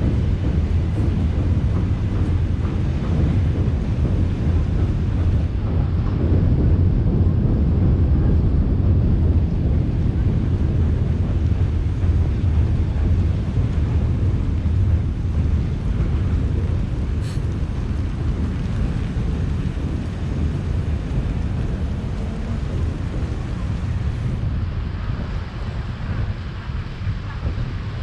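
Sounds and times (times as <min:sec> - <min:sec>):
wind buffeting microphone: 0:00.0 - 0:28.0
city traffic: 0:15.0 - 0:24.6.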